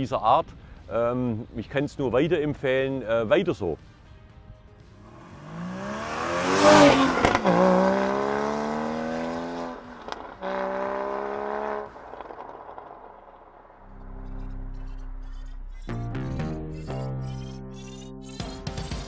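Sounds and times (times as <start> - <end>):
sports car engine revving past: 5.0 - 15.2.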